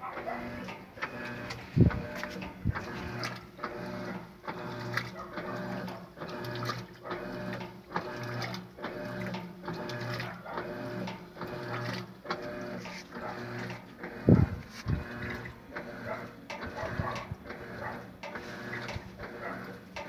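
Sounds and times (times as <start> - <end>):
washing machine motor whirring: 0.0 - 20.0
washing machine clicks: 13.4 - 20.0.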